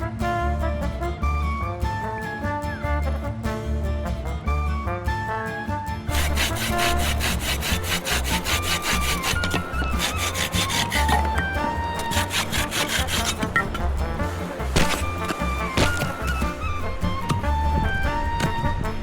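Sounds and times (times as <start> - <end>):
hand saw cutting wood: 6.1 - 18.7
background music with pulsing bass: 9.7 - 19.0.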